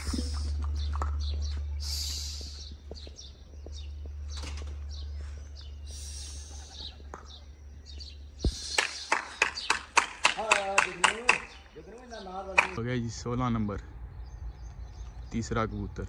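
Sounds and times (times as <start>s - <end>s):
steady low rumble: 0.0s - 9.6s
birds chirping: 0.0s - 16.0s.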